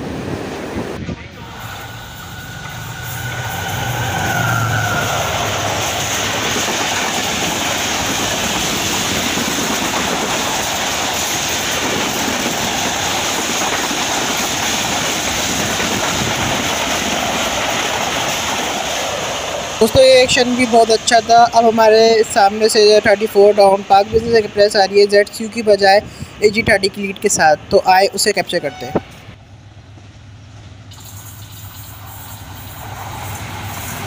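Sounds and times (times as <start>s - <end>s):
coaches rushing past on rails: 0.0s - 34.0s
locomotive engine: 0.0s - 34.0s.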